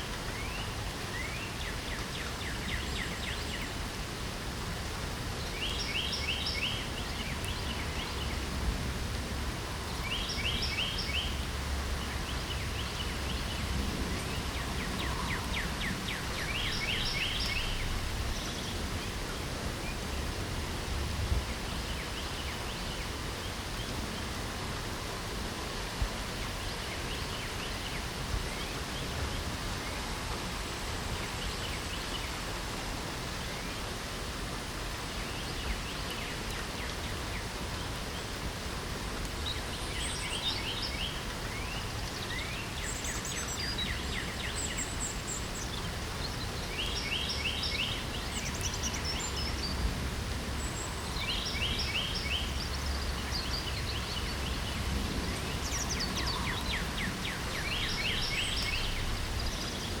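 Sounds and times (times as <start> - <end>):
light rain hissing: 0.0 - 60.0
songbirds trilling: 9.8 - 20.4, 39.3 - 60.0.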